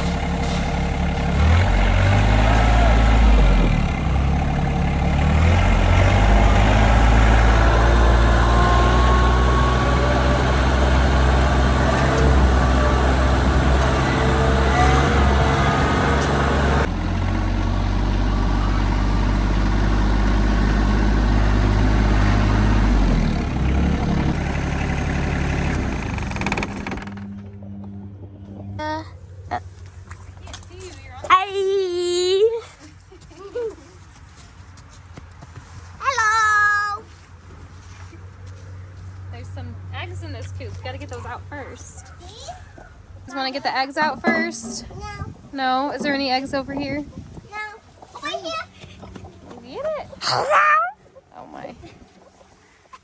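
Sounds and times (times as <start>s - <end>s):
diesel tractor engine running: 0.0s - 30.0s.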